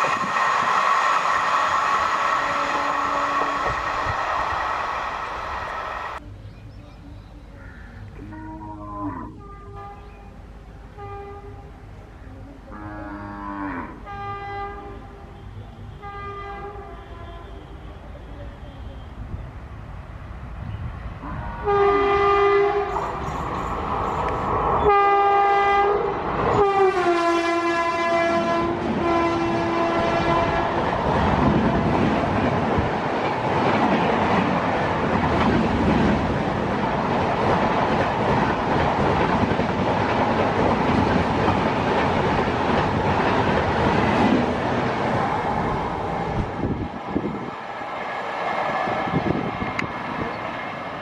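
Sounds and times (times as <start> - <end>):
train coaches rumbling past: 0.0 - 51.0
train horn blasts: 2.4 - 3.9, 8.2 - 19.2, 21.2 - 23.1, 24.8 - 30.9.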